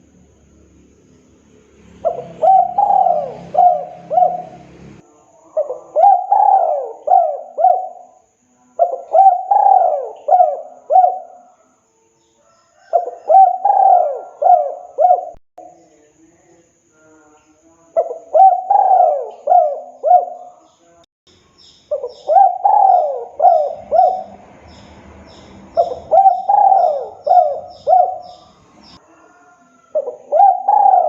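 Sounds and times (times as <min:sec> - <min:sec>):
dove cooing: 0:02.0 - 0:04.9, 0:05.5 - 0:08.2, 0:08.8 - 0:11.6, 0:12.8 - 0:15.4, 0:18.0 - 0:20.6, 0:21.9 - 0:31.0.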